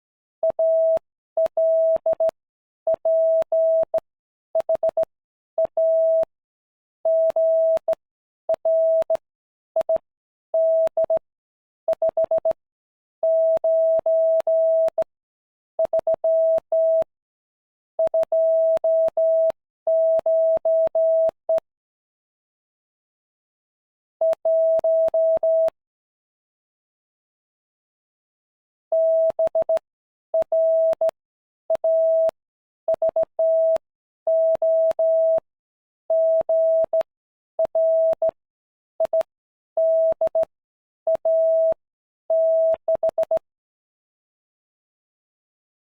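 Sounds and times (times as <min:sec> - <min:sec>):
morse code beeps: 0:30.4 - 0:31.2, 0:31.8 - 0:32.4, 0:33.0 - 0:35.4, 0:36.1 - 0:37.1, 0:37.7 - 0:38.4, 0:39.0 - 0:40.5, 0:41.1 - 0:43.4.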